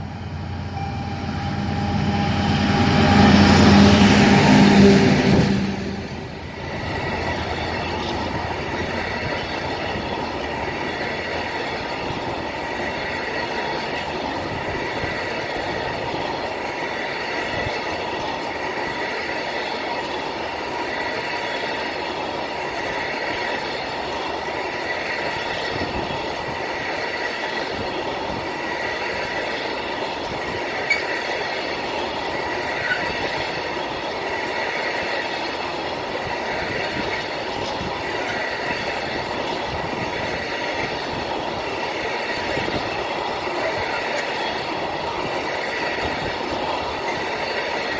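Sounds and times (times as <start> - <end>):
train wheels rolling on rails: 0.0 - 47.9
faint wheel squeal: 30.8 - 31.3.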